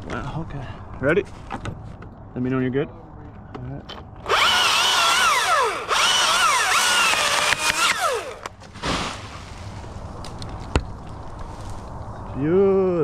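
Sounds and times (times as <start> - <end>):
chainsaw cutting wood: 4.2 - 8.5.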